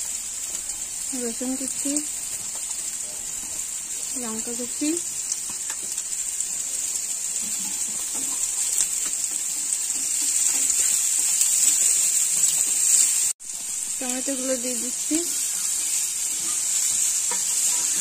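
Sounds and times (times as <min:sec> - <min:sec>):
vegetables sizzling in hot oil: 0:00.0 - 0:18.0
spatula scraping a pan: 0:07.4 - 0:13.0, 0:15.3 - 0:18.0.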